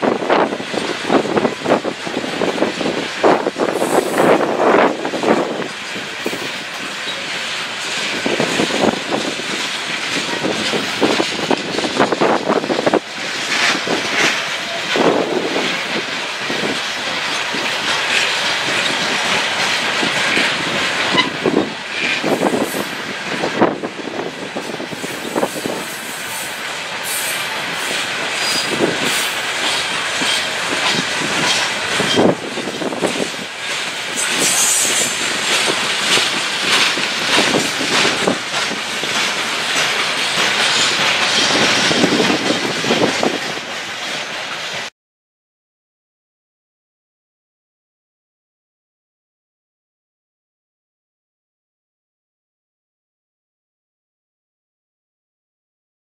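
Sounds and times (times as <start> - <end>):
steel wheels rumbling: 0.0 - 44.9
clatter over rail joints: 0.3 - 44.9.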